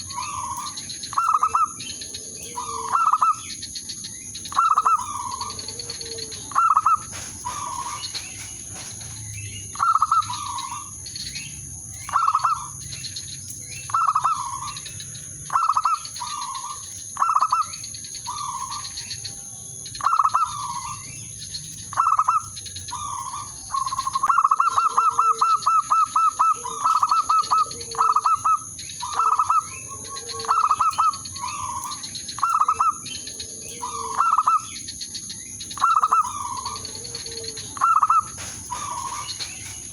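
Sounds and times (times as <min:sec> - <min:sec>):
dove cooing: 0:00.0 - 0:11.0, 0:13.9 - 0:19.1, 0:20.0 - 0:21.1, 0:21.9 - 0:34.8, 0:35.8 - 0:39.9.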